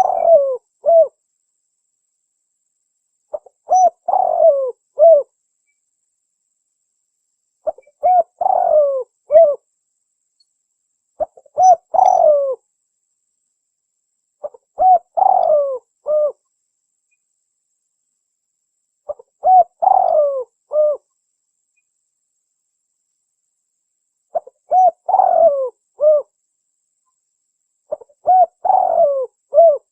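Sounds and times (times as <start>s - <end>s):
dove cooing: 0.0s - 1.2s, 3.3s - 5.3s, 7.6s - 9.6s, 11.2s - 12.6s, 14.4s - 16.4s, 19.1s - 21.1s, 24.3s - 26.3s, 27.9s - 29.9s.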